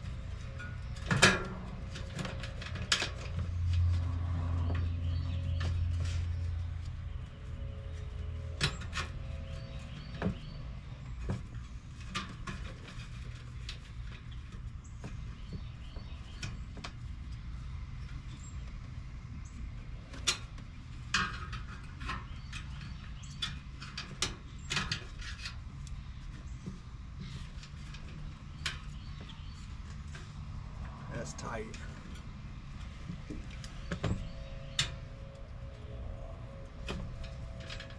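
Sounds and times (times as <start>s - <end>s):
low hum: 24.7s - 37.9s.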